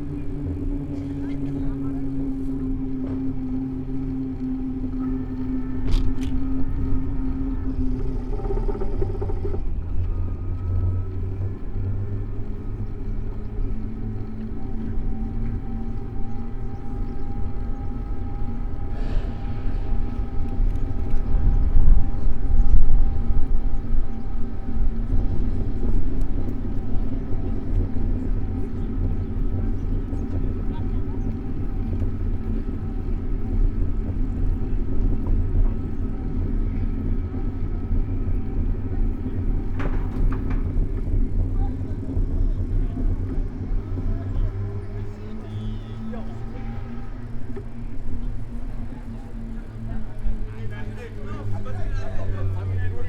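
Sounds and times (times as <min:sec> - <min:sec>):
low rumble: 0:00.0 - 0:53.0
passing traffic: 0:00.0 - 0:53.0
wind buffeting microphone: 0:00.0 - 0:53.0
high thin whine: 0:14.0 - 0:31.1
short hissing swell: 0:18.6 - 0:22.6.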